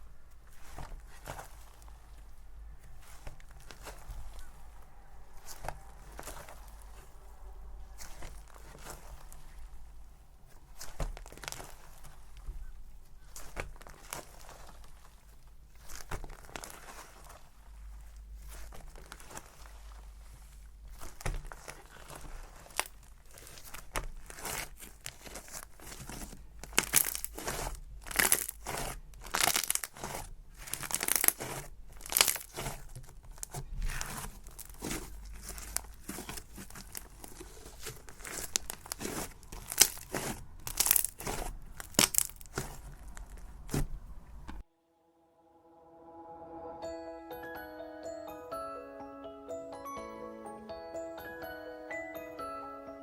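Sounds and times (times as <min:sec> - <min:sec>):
slime crackling and popping: 0:05.3 - 0:07.2, 0:07.9 - 0:12.4, 0:20.9 - 0:44.6
soft chiming music: 0:45.6 - 0:53.0.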